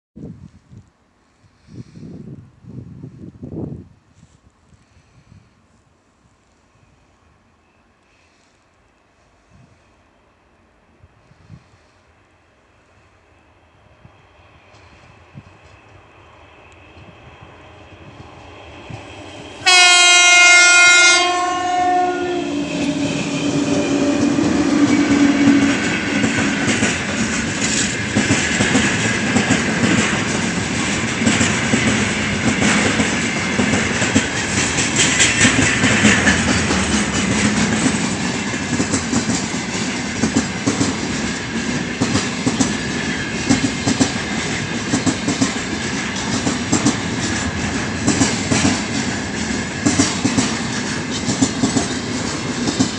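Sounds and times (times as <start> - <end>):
train rail rumble: 6.4 - 52.9
locomotive horn blast: 19.6 - 24.3
wheels clicking over rail joints: 26.0 - 52.9.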